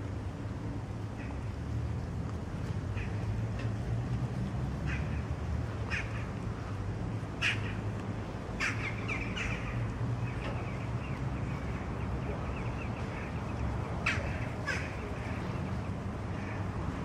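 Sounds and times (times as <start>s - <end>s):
harsh bird calls: 8.6s - 15.6s.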